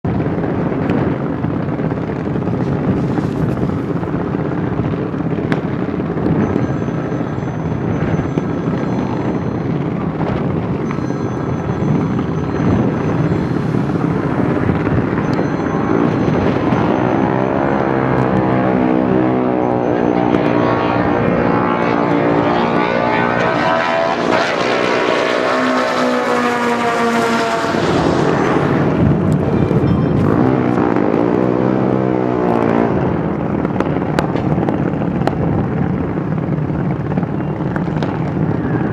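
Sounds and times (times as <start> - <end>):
car engine revving: 12.7 - 34.3.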